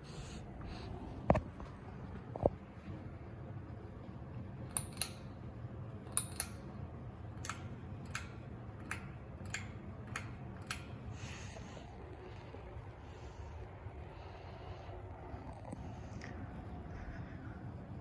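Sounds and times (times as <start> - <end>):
ceiling fan humming: 0.0 - 18.0
sharp clicks: 4.7 - 5.3, 6.1 - 6.7, 7.4 - 11.2.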